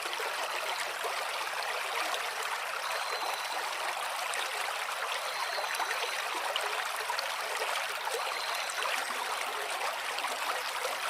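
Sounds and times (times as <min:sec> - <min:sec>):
stream water flowing: 0:00.0 - 0:11.0.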